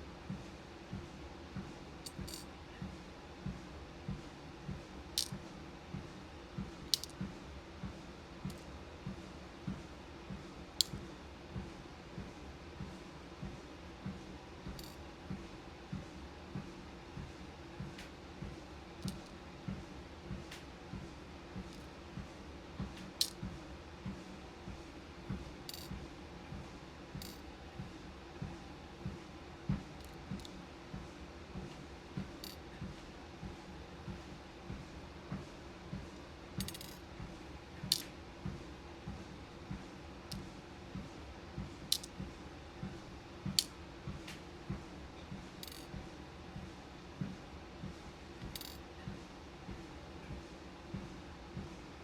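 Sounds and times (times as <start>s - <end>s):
footsteps on a treadmill: 0.3s - 18.6s, 19.6s - 39.9s, 40.9s - 48.0s, 48.6s - 51.8s
beads clicking: 2.1s - 2.4s, 5.2s - 5.4s, 6.9s - 7.2s, 36.6s - 37.0s, 41.9s - 42.2s.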